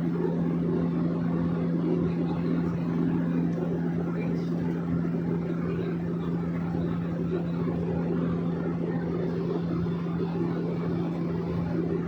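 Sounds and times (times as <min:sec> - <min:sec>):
airplane propeller engine drone: 0:00.0 - 0:12.0.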